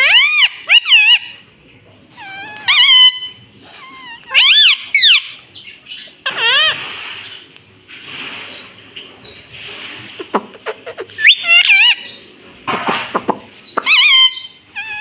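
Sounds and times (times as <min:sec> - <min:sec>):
parrot shrill calls: 0:00.0 - 0:01.4, 0:02.2 - 0:06.8, 0:11.2 - 0:12.2, 0:13.6 - 0:15.0.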